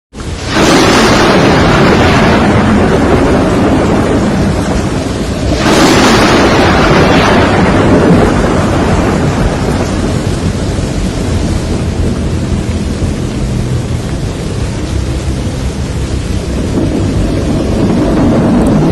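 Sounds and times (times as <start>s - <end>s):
heavy rain: 0.1s - 18.9s
thunderclap rumbling: 0.2s - 18.9s.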